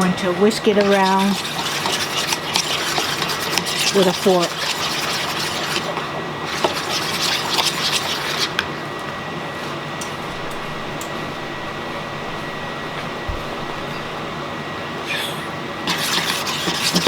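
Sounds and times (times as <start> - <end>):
kitchen fan running: 0.0 - 17.0
fork whisking sauce in a bowl: 0.6 - 8.6, 15.9 - 17.0.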